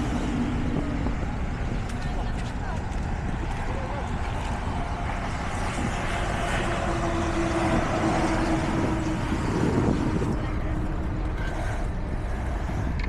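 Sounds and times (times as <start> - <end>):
construction machinery running: 0.0 - 13.0
steady whine: 0.0 - 13.0.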